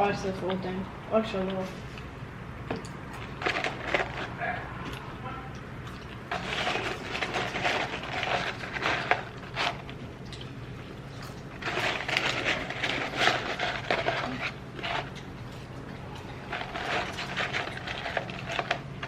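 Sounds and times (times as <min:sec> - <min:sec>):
low steady hum: 0:00.0 - 0:19.0
crackly chewing: 0:00.3 - 0:19.0.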